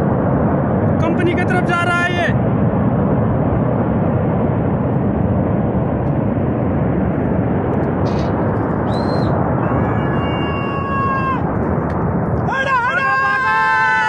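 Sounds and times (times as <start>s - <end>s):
flash flood roaring: 0.0s - 14.0s
faint high whistle: 8.8s - 9.4s.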